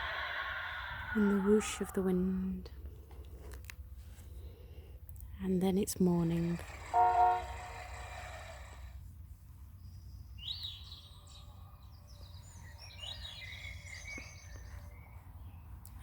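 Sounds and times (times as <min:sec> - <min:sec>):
recorded birdsong from small speaker: 0:09.6 - 0:16.0.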